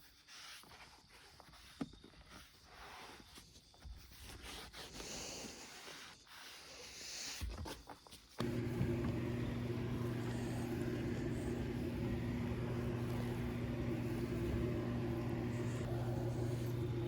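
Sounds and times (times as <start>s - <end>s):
steady machine hum: 8.4s - 17.0s.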